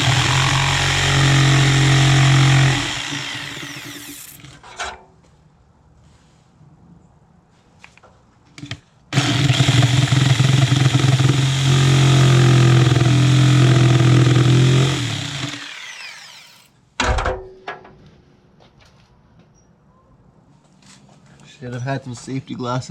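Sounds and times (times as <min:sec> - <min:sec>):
power tool running: 0:00.0 - 0:04.6, 0:09.1 - 0:16.7.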